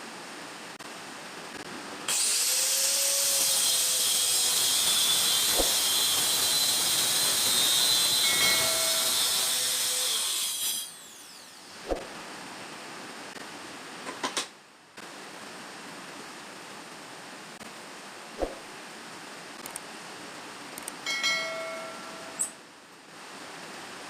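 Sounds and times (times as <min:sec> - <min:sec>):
sharp click: 0:19.6 - 0:19.8, 0:20.8 - 0:21.0.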